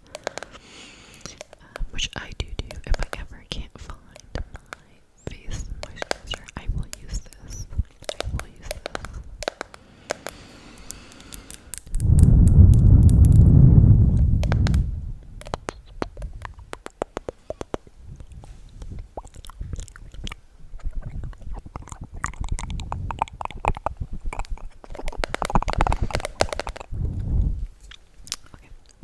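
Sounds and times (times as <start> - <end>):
wet mouth clicks and smacks: 0.0 - 13.4, 14.2 - 29.0
loud low rumble: 12.0 - 15.4.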